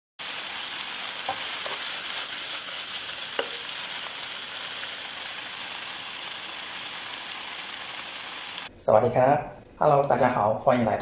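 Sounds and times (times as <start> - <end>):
food sizzling in a pan: 0.2 - 8.7.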